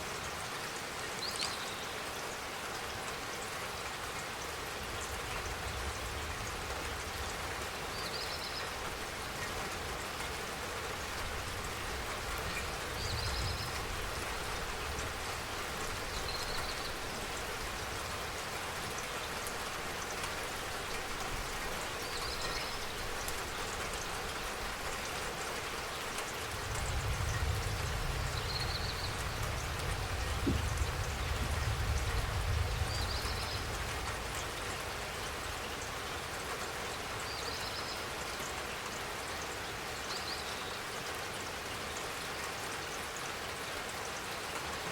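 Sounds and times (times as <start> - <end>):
rain pattering: 0.0 - 44.9.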